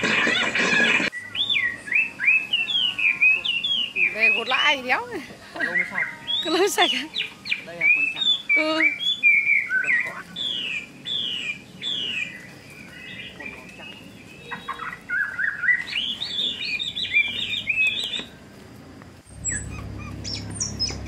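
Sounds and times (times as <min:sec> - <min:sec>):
bird chirps: 0:00.2 - 0:18.6, 0:19.2 - 0:21.0
bird whistling descending notes: 0:01.1 - 0:04.6, 0:14.4 - 0:18.3, 0:19.3 - 0:21.0.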